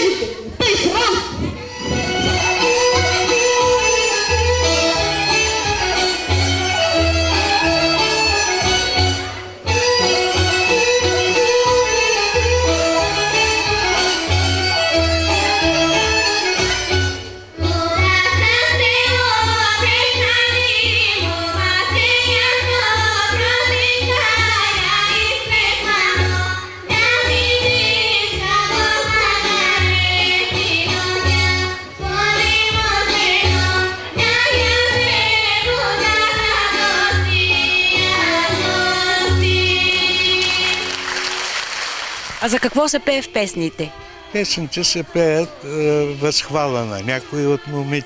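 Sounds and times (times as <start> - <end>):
instrumental accompaniment with low beat: 0.0 - 18.3
women singing folk song: 17.6 - 41.1, 42.4 - 46.5.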